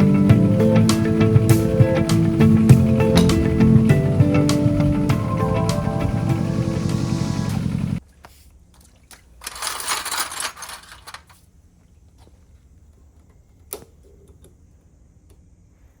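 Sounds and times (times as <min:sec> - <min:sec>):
noisy rush: 0:00.0 - 0:08.0.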